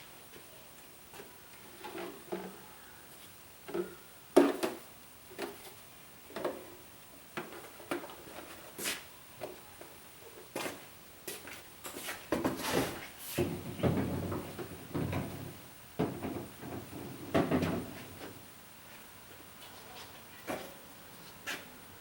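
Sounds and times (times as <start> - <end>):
objects clunking and knocking: 1.1 - 2.6, 3.6 - 8.8, 12.0 - 18.4.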